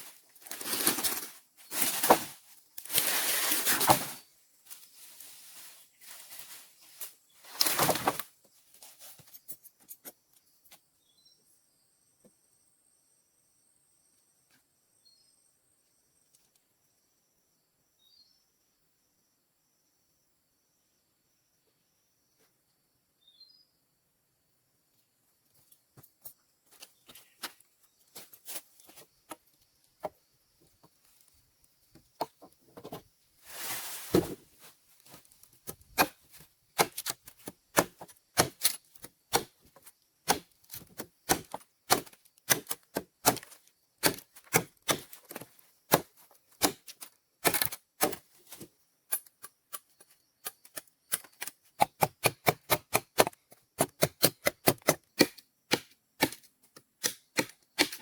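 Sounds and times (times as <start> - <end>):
short rustle: 33.4 - 35.4
hand tool striking wood: 35.6 - 48.6, 49.2 - 58.0.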